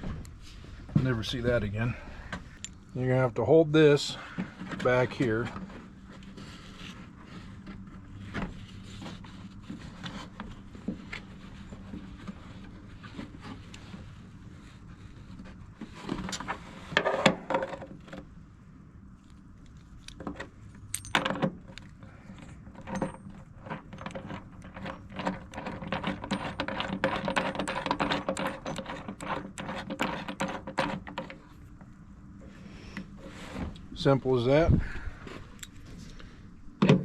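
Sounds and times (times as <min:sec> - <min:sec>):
metal tools and parts clinking: 0:20.8 - 0:29.2.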